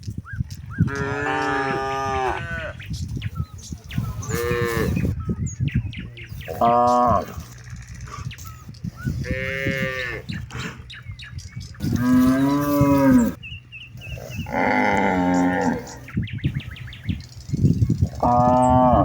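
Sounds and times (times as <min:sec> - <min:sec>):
cattle mooing: 0:00.8 - 0:02.8, 0:04.2 - 0:05.0, 0:06.5 - 0:07.5, 0:09.1 - 0:10.5, 0:11.8 - 0:13.4, 0:14.1 - 0:16.1, 0:18.1 - 0:19.0.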